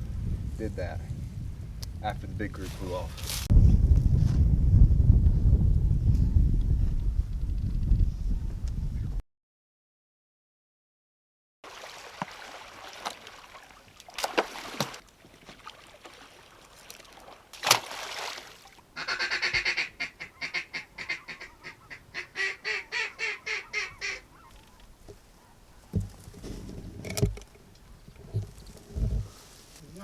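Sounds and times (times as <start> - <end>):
sharp crack: 17.6 - 18.2
quack-like duck calls: 19.0 - 24.5.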